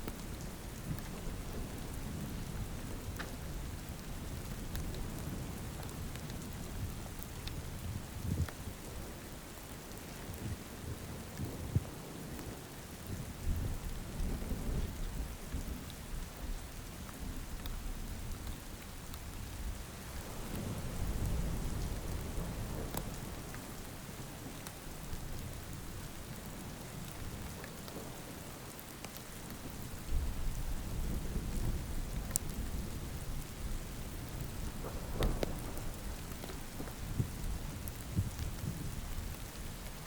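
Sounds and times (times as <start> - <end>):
heavy rain: 0.0 - 40.0
low thunder rumbling: 19.2 - 28.4, 29.4 - 40.0.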